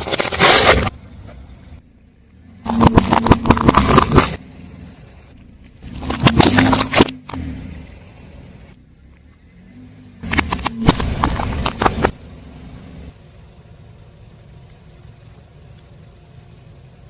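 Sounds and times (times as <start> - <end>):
tyre crushing crunchy object: 0.0 - 1.0, 2.7 - 4.4, 5.8 - 7.4
car engine running: 0.0 - 17.0.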